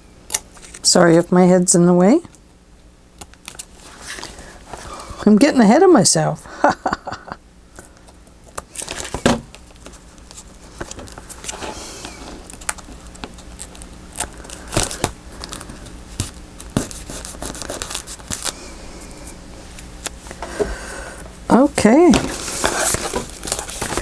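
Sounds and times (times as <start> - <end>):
paper rustling and crinkling: 3.4 - 5.2, 8.7 - 19.3, 21.9 - 24.0.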